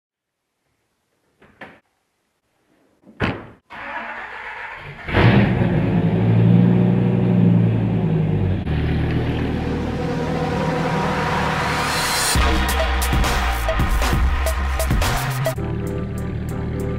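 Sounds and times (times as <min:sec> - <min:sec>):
car engine cranking: 0:03.7 - 0:05.8
car engine idling: 0:07.7 - 0:16.9.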